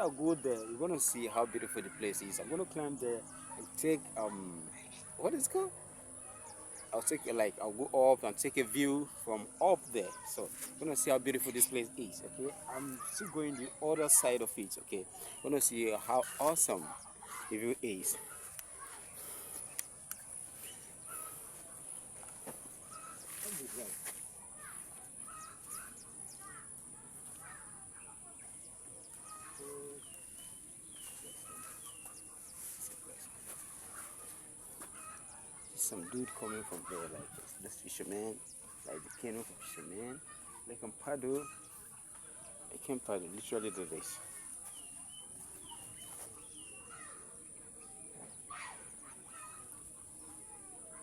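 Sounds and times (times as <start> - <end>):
insects droning: 0.0 - 51.0
small birds chirping: 0.0 - 51.0.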